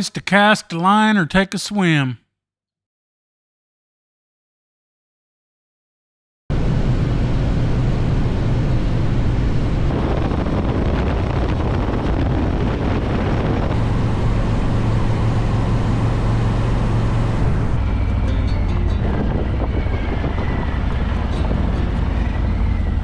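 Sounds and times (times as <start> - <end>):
wind and road noise: 6.5 - 18.1, 19.1 - 23.0
motorcycle engine running: 13.8 - 17.8.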